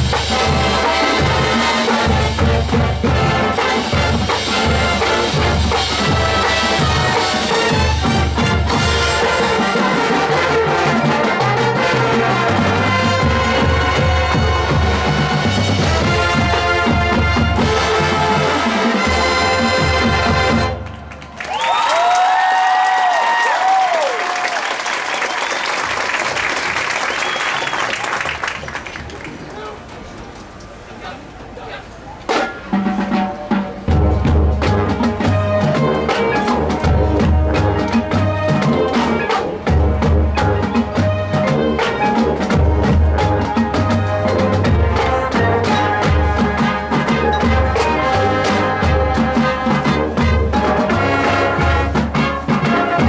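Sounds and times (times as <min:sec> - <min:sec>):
pounding low drums: 0:00.0 - 0:21.3, 0:33.6 - 0:53.0
marching band playing: 0:00.0 - 0:29.9, 0:31.9 - 0:53.0.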